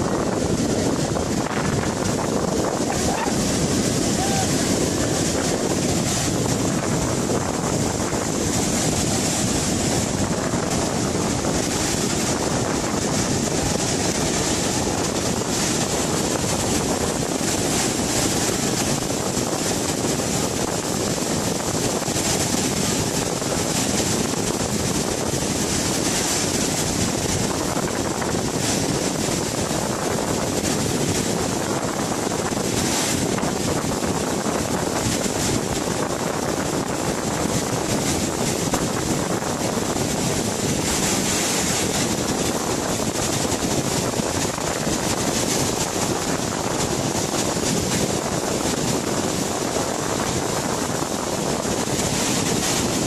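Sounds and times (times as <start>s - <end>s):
floodwater rushing: 0.0s - 53.0s.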